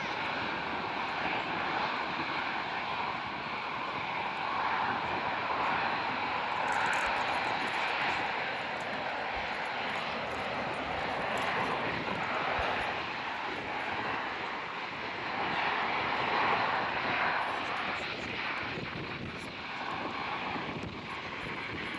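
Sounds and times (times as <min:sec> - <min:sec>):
jet engines rushing: 0:00.0 - 0:21.9.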